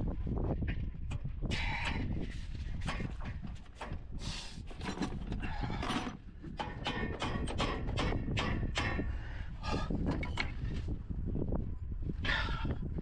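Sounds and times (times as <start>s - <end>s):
clicks and knocks of tools: 10.1s - 10.6s.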